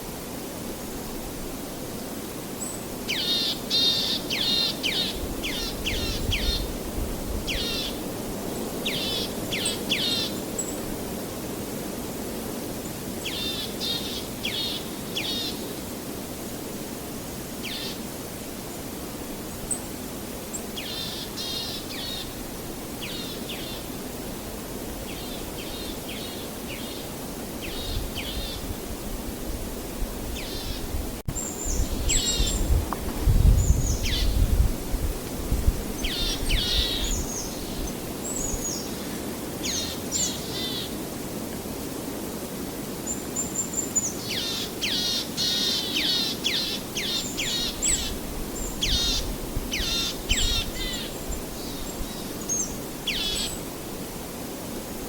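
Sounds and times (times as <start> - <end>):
songbirds trilling: 2.6 - 6.8, 7.4 - 10.8, 30.3 - 32.8, 33.4 - 34.4, 35.9 - 40.9, 43.1 - 53.7.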